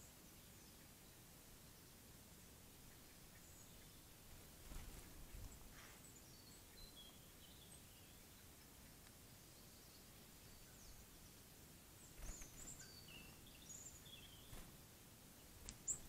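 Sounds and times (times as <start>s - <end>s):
faint hiss: 0.0s - 16.0s
bird chirps: 5.0s - 11.4s, 12.0s - 14.7s, 15.4s - 16.0s.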